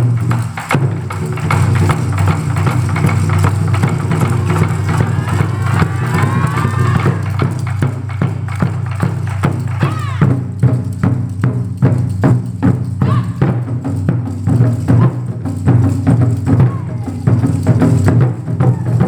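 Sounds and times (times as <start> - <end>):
taiko drums playing: 0.0 - 19.0.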